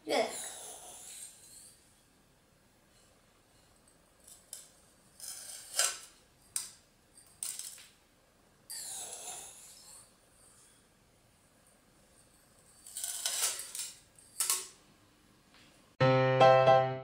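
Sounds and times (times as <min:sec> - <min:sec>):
gravel rattling onto glass: 0:12.6 - 0:14.7.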